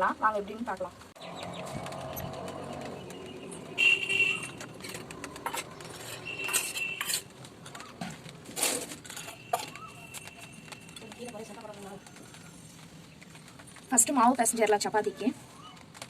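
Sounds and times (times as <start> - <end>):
metal utensils clinking: 1.8 - 11.9.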